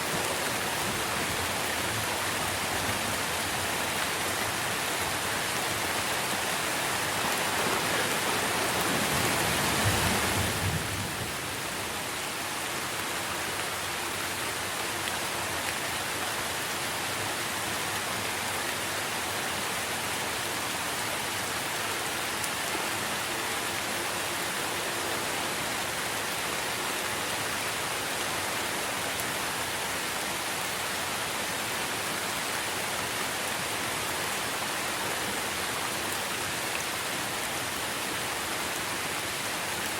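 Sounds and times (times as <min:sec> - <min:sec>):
rain falling on trees: 0:00.0 - 0:39.9.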